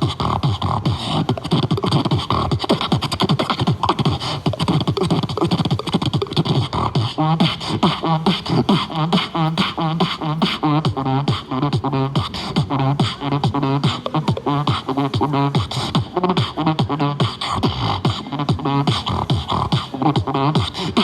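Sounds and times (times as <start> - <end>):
person beatboxing: 0.0 - 21.0.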